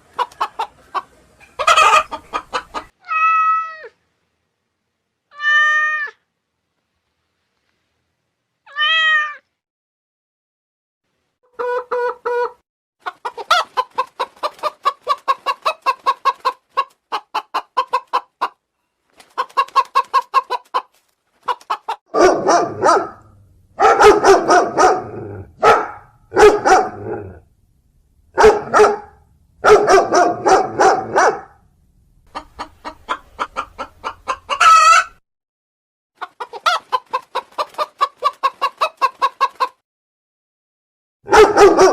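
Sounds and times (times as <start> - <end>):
chickens clucking: 0.0 - 3.0, 11.5 - 18.6, 19.2 - 22.0, 32.3 - 35.2, 36.2 - 39.8.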